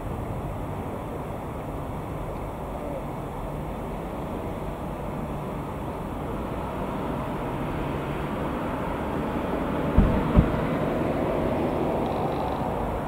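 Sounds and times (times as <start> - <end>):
train rumbling: 9.9 - 12.9.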